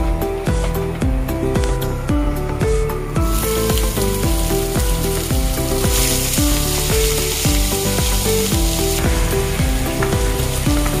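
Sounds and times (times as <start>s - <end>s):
background music with steady beat: 0.0s - 11.0s
ginger sizzling in hot oil: 3.2s - 11.0s.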